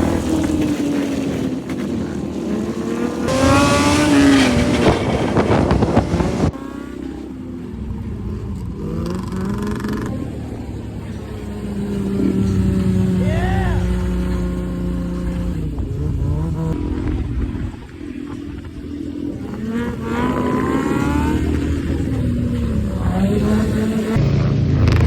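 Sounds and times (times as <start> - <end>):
rushing wind: 0.0 - 6.6
motorcycle engine revving: 0.0 - 25.0.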